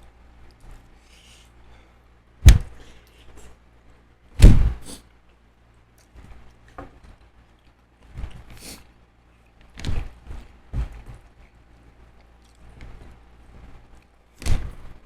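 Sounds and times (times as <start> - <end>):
loud thumps: 2.4 - 2.8, 4.4 - 4.9.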